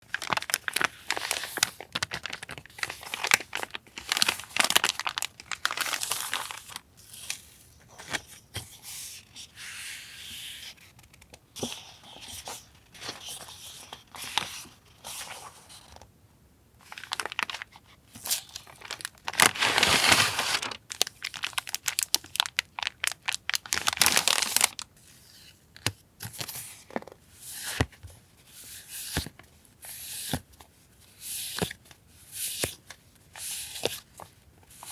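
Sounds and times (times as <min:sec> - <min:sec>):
paper rustling and tearing: 0:16.9 - 0:24.8.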